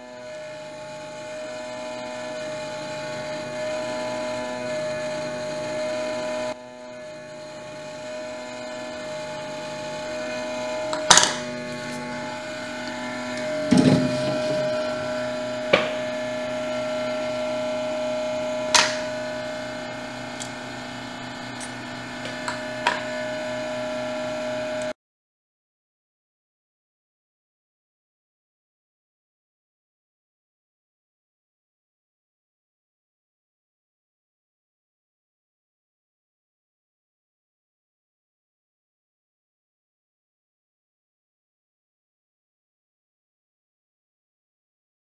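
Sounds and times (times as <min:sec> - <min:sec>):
hot-air station blowing: 0:00.0 - 0:24.9.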